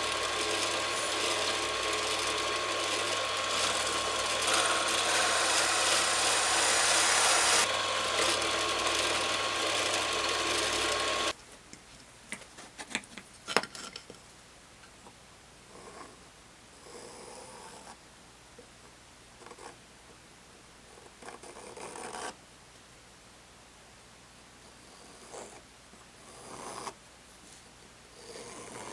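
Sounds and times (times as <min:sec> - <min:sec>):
power tool running: 0:00.0 - 0:11.4.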